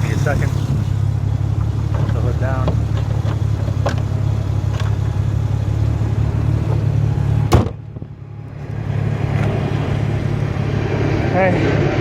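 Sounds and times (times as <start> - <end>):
car engine idling: 0.0 - 11.6
car hood slammed shut: 7.5 - 8.1.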